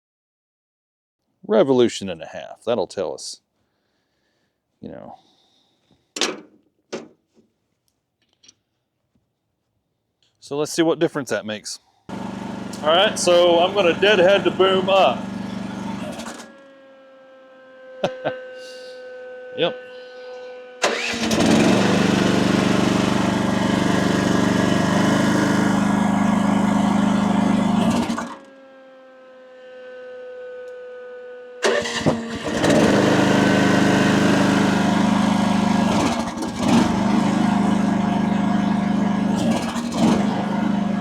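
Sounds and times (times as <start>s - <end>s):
excavator engine running hard: 12.1s - 41.0s.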